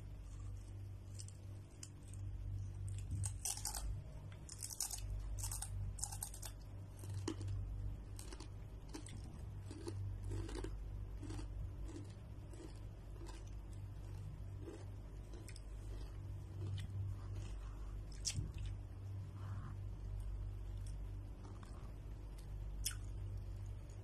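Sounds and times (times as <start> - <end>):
low steady hum: 0.0 - 24.0
person crunching chips: 2.9 - 18.7.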